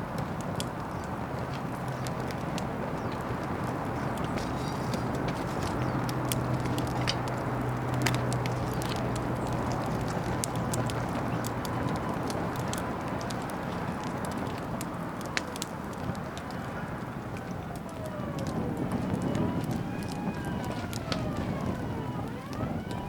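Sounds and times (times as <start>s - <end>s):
bonfire crackling and popping: 0.0s - 23.0s.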